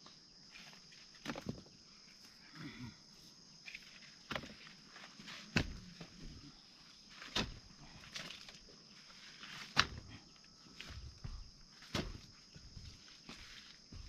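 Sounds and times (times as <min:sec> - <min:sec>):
insects droning: 0:00.0 - 0:14.0
dull thuds: 0:04.3 - 0:06.5, 0:07.2 - 0:07.9, 0:09.4 - 0:10.2, 0:10.8 - 0:14.0.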